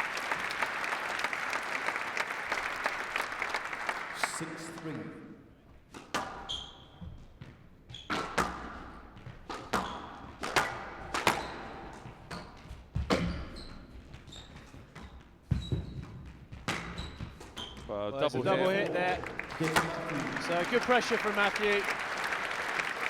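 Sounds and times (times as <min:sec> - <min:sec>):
shoes squeaking on court floor: 0:06.2 - 0:18.0
squash ball hits: 0:08.1 - 0:12.4, 0:13.0 - 0:13.6, 0:15.5 - 0:17.6.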